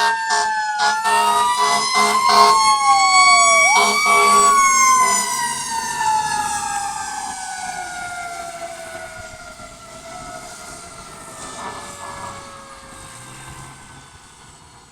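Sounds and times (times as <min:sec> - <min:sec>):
fire engine siren winding down: 0:00.0 - 0:14.9.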